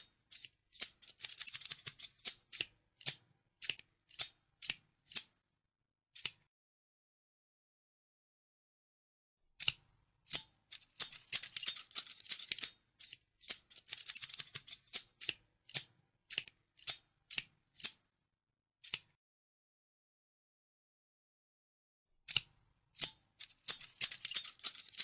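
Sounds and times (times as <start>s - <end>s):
scissors snipping: 0.0s - 5.3s, 6.2s - 6.4s, 9.6s - 18.0s, 18.8s - 19.2s, 22.3s - 25.0s.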